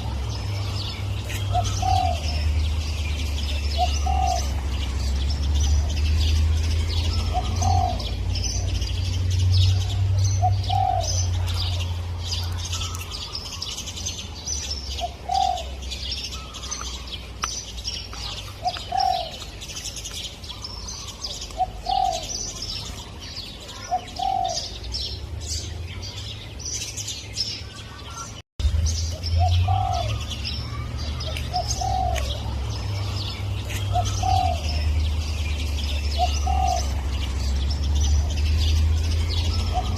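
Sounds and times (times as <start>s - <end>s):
small birds chirping: 0.0s - 39.9s
dove cooing: 1.2s - 2.5s, 3.4s - 4.7s, 7.0s - 8.8s, 9.7s - 13.0s, 14.9s - 16.7s, 18.3s - 19.4s, 20.7s - 22.8s, 23.7s - 24.8s, 29.4s - 35.1s, 35.8s - 37.2s, 39.3s - 39.9s.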